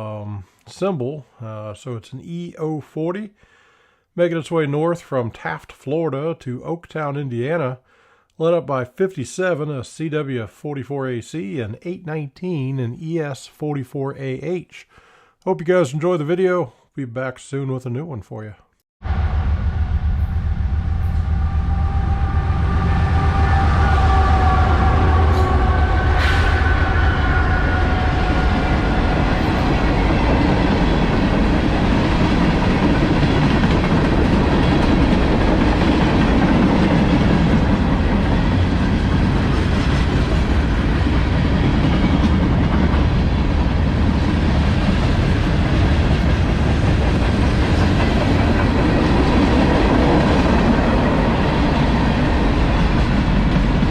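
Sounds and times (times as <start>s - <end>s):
diesel locomotive rumble: 19.0s - 53.9s
train wheels clickety-clack: 28.4s - 53.9s.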